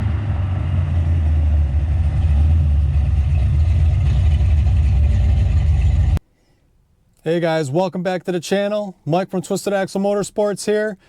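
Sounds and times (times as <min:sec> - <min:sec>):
car engine deep rumble: 0:00.0 - 0:06.2.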